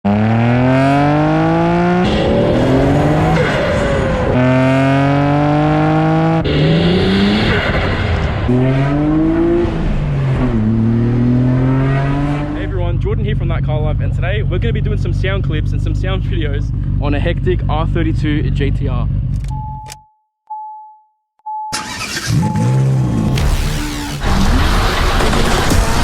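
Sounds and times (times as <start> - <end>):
car engine revving hard: 0.1 - 12.8, 21.8 - 26.0.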